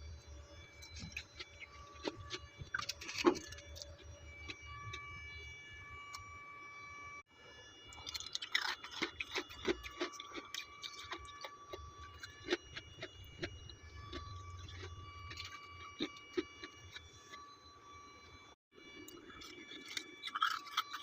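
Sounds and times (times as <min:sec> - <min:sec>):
faint steady whine: 0:00.0 - 0:21.0
frost chunks crunching in mouth: 0:00.9 - 0:04.6, 0:07.9 - 0:17.0, 0:19.1 - 0:21.0.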